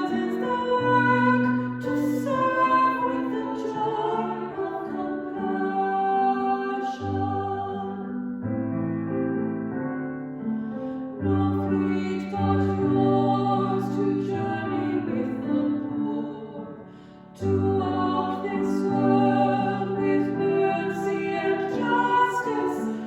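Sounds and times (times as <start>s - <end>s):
keyboard playing slow hymn: 0.0s - 23.0s.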